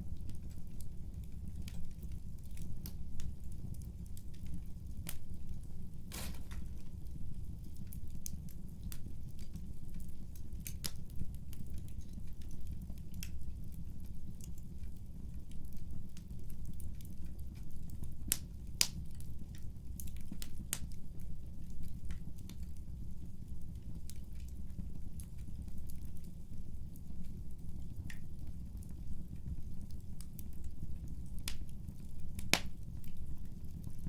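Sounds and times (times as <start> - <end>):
wood fire low rumble: 0.0 - 34.0
crackles and pops of burning wood: 0.1 - 34.0.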